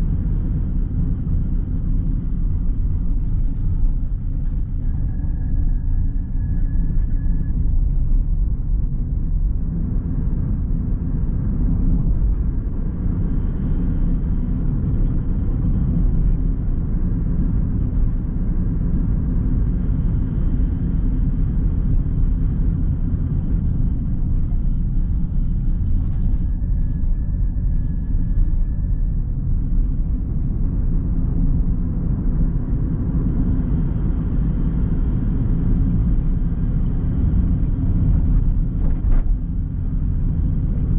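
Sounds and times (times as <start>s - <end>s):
road and engine rumble: 0.0s - 40.9s.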